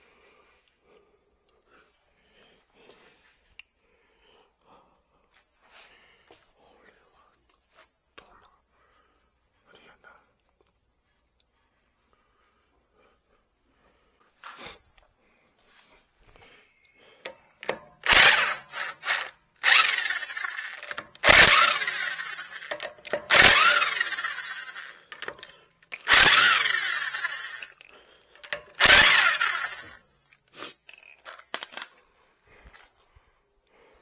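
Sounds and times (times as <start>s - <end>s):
power tool bursts: 17.6s - 27.8s, 28.4s - 30.0s.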